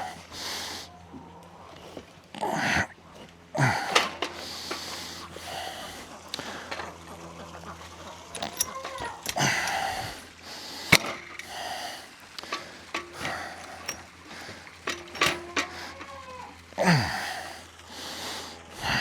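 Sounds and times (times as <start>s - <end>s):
metal clinks and knocks: 8.3s - 10.2s, 10.9s - 11.6s, 12.3s - 16.4s
metal scraping: 8.3s - 10.2s, 12.3s - 16.2s.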